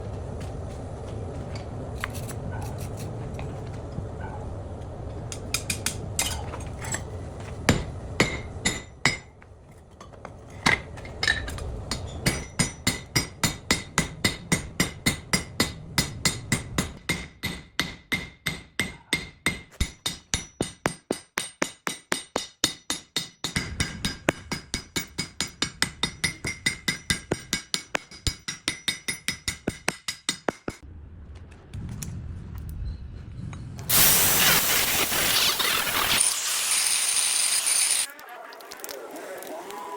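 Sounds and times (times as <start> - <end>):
hammer striking metal: 7.7 - 9.3, 10.7 - 30.8
low steady rumble: 30.8 - 33.9.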